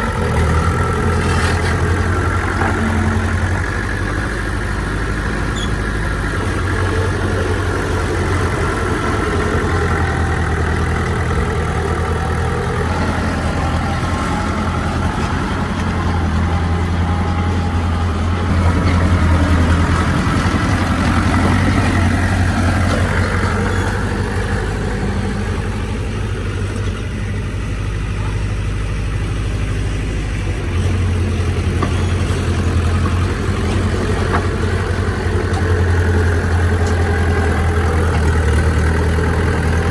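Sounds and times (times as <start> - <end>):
heavy machinery diesel engine running: 0.0 - 39.9.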